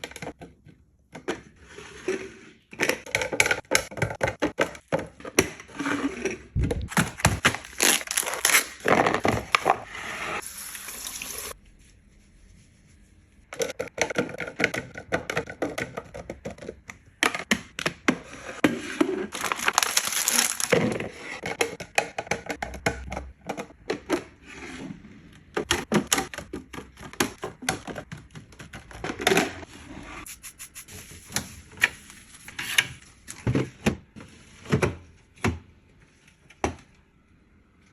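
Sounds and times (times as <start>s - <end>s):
plastic boxes clicking and knocking: 2.7s - 5.7s, 13.6s - 18.3s, 19.4s - 24.3s, 25.5s - 29.6s
hissing noise: 30.3s - 31.4s.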